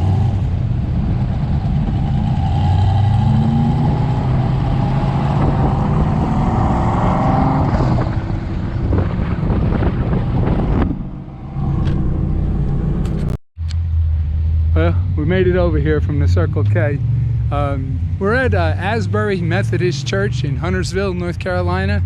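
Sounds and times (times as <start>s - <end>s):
hot rod engine accelerating: 0.0s - 22.0s.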